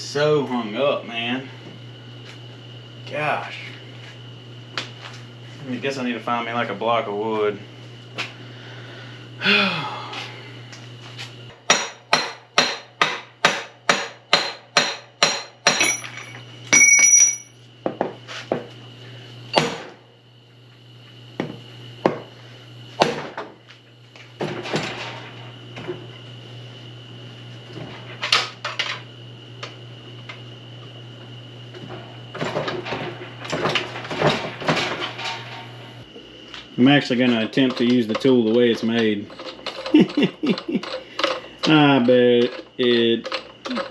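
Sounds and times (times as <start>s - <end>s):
hammer striking metal: 11.7s - 17.5s.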